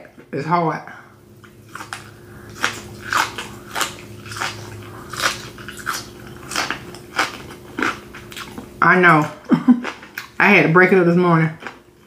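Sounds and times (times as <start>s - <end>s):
wet chewing: 1.4s - 10.4s.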